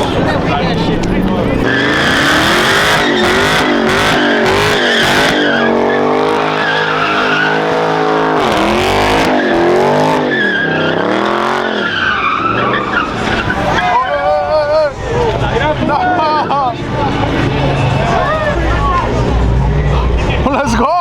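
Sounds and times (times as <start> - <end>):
car engine revving: 0.0 - 20.6
tyres squealing: 1.4 - 15.0.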